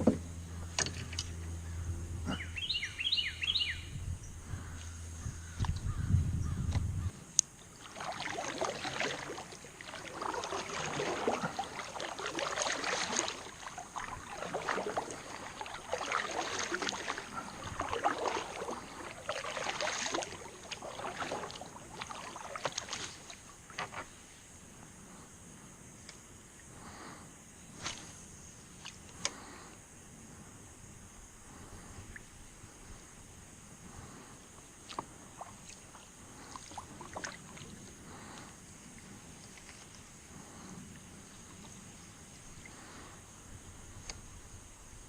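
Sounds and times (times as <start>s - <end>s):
paddle splashing in water: 7.6s - 24.4s, 33.9s - 43.2s.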